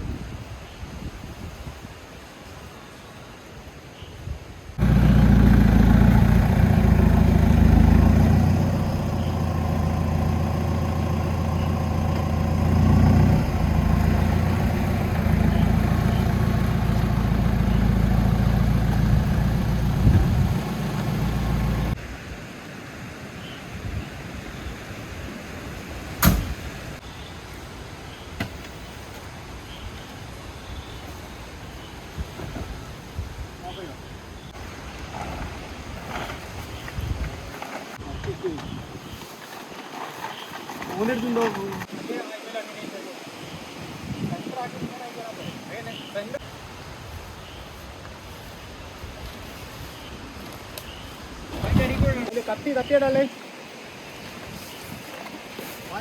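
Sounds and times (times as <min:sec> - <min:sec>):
car engine running: 0:04.8 - 0:22.0.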